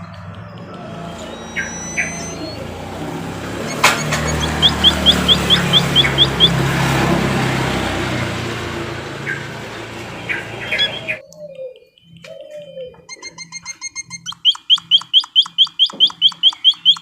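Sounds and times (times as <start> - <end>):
bird short rising chirps: 0.0 - 6.6
bird thin high whistles: 0.6 - 2.8.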